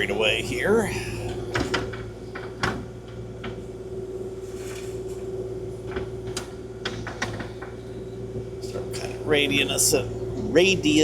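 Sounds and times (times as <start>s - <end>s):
excavator diesel engine humming: 0.0s - 2.3s, 7.8s - 11.0s.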